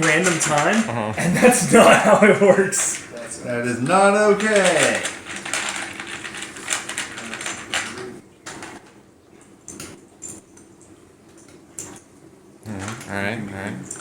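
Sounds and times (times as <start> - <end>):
plastic game pieces clattering: 0.0 - 3.0, 4.0 - 8.9.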